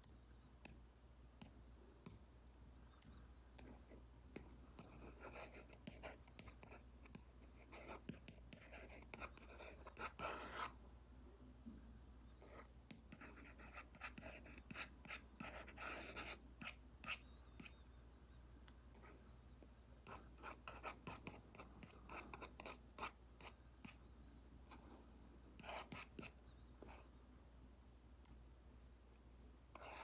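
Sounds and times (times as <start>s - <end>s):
stylus tapping on screen: 1.4s - 2.3s.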